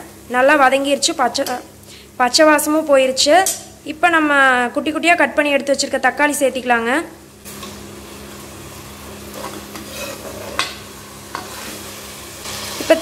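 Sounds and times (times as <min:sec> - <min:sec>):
tomatoes sizzling in oil: 0:00.0 - 0:13.0
ladle knocking and scraping pan: 0:09.3 - 0:11.7.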